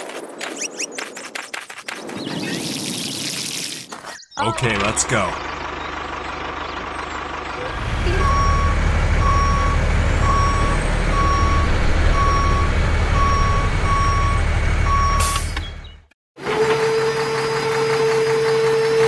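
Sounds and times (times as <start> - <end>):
truck engine running: 4.4 - 19.0
reversing alarm beeping: 8.0 - 16.0.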